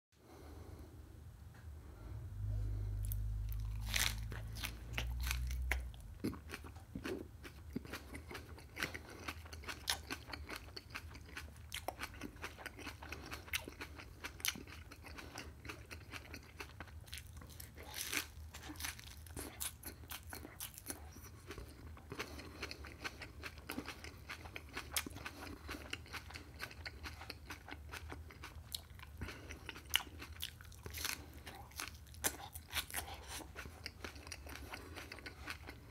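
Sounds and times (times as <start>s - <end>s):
low rumble: 0.9s - 6.2s
person chewing crunchy food: 2.6s - 35.9s.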